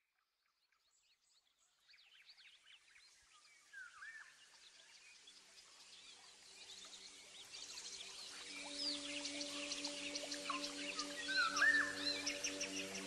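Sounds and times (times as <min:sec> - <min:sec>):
birds chirping and whistling: 0:08.4 - 0:13.0.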